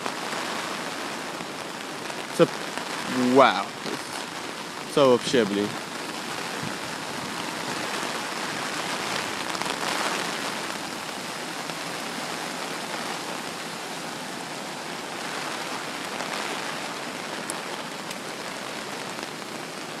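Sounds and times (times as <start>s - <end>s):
storm rain and flood water: 0.0s - 20.0s.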